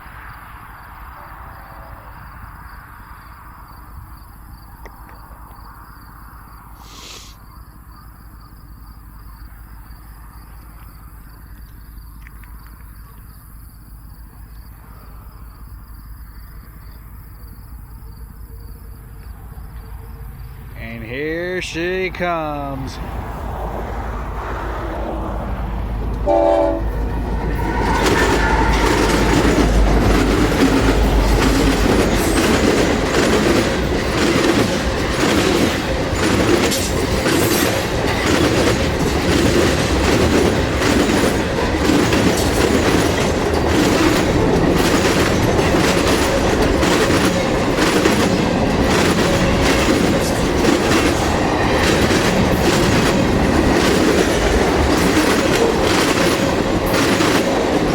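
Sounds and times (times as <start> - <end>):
locomotive engine rumble: 17.8 - 57.9
train wheels clickety-clack: 24.4 - 57.9
train horn blast: 26.1 - 30.1.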